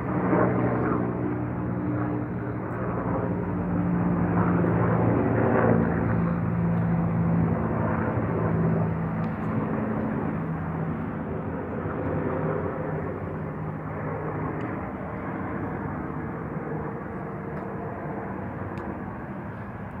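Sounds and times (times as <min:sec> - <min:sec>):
helicopter rotor and engine noise: 0:00.0 - 0:20.0.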